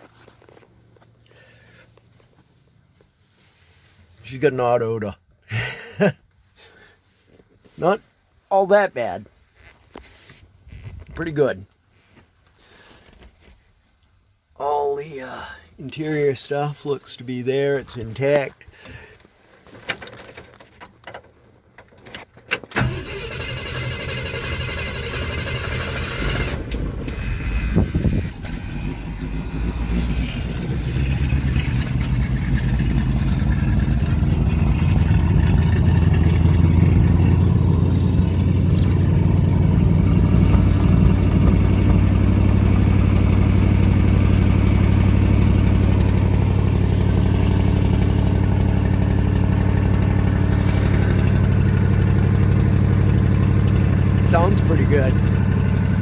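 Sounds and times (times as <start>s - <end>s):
car engine starting and idling: 22.5s - 56.0s.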